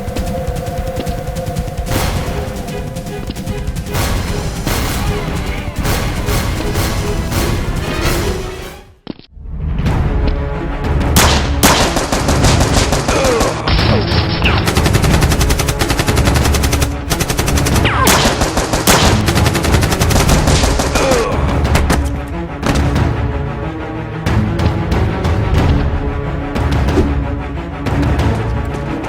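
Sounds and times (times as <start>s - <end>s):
action music: 0.0s - 29.0s
rapid automatic gunfire: 11.2s - 13.7s, 14.5s - 21.3s.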